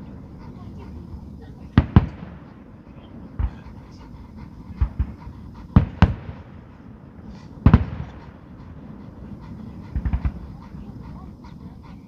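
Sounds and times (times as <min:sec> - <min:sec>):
low rumble: 0:00.0 - 0:12.0
fireworks sharp bangs: 0:01.2 - 0:03.9, 0:04.7 - 0:11.0
fireworks thumps: 0:01.7 - 0:03.7, 0:04.8 - 0:08.5, 0:09.9 - 0:10.5.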